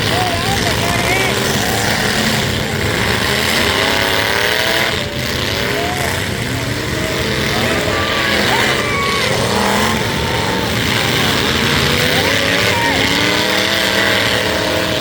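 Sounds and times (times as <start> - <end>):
truck engines revving: 0.0 - 15.0.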